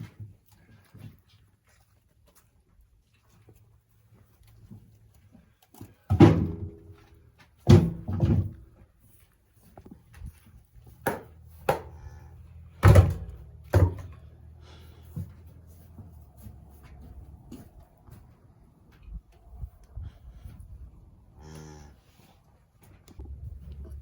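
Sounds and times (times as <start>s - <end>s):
wooden boards thudding and knocking: 6.1s - 6.9s, 7.6s - 8.6s, 11.0s - 11.9s, 12.7s - 14.3s.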